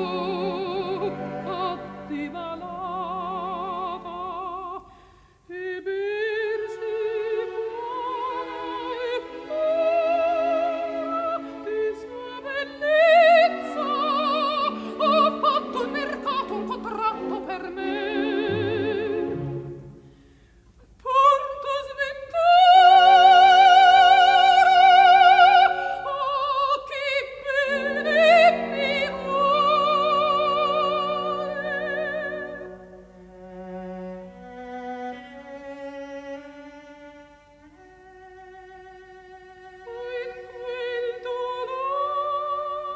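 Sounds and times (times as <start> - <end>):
operatic soprano singing: 0.0 - 4.9, 5.5 - 20.0, 21.0 - 32.9, 38.5 - 42.9
orchestral accompaniment: 6.8 - 20.3, 27.5 - 35.6.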